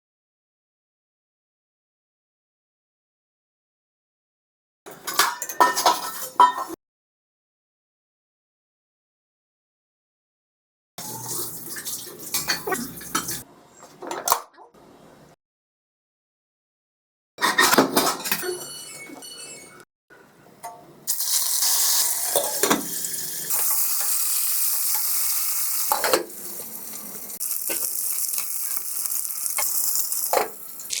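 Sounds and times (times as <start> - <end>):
pots and utensils clattering: 4.9 - 6.8, 17.4 - 19.7, 22.3 - 24.2, 25.9 - 31.0
chicken sizzling in hot oil: 21.1 - 31.0.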